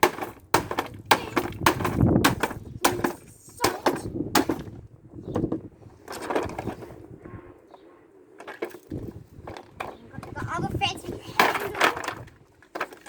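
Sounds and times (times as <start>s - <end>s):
hammer breaking hard plastic: 0.0s - 4.8s.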